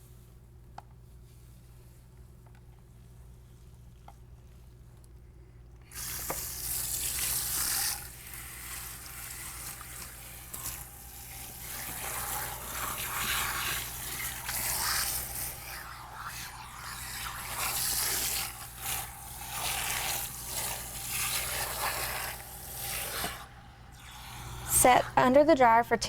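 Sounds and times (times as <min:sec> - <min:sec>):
water splashing at a sink: 0:05.9 - 0:24.9.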